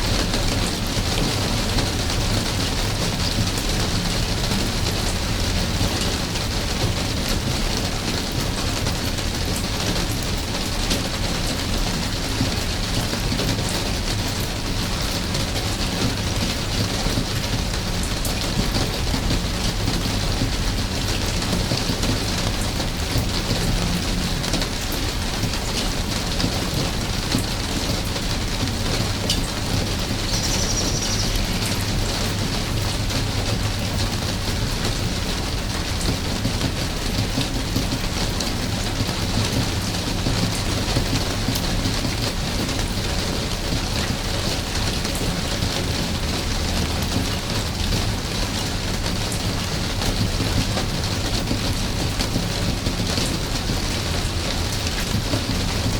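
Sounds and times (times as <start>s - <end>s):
rain pattering on surfaces: 0.0s - 55.9s.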